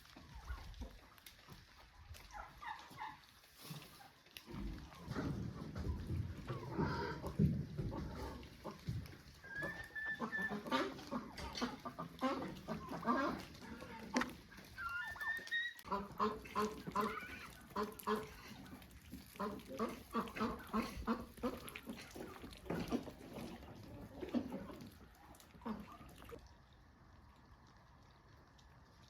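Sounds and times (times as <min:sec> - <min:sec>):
fowl honking calls: 0:09.4 - 0:13.6.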